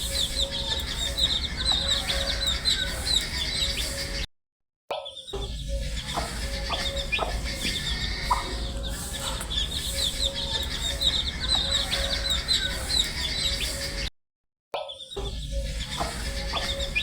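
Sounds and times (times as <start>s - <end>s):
baby chicks peeping: 0.0s - 4.2s, 5.2s - 14.1s, 15.1s - 17.0s
steady low hum: 0.0s - 4.2s, 5.5s - 14.1s.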